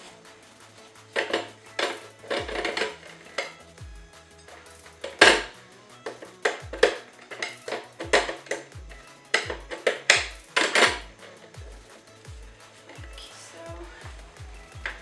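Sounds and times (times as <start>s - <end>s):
electronic music with steady beat: 0.0s - 15.0s
tire irons clanking on wheel rim: 1.2s - 3.6s, 4.5s - 11.5s.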